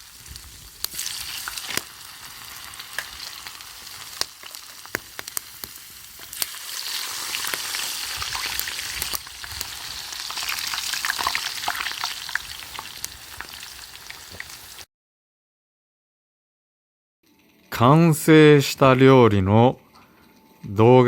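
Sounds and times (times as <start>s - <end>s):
food sizzling in hot oil: 0.0s - 14.9s
pops and crackles: 0.2s - 14.6s.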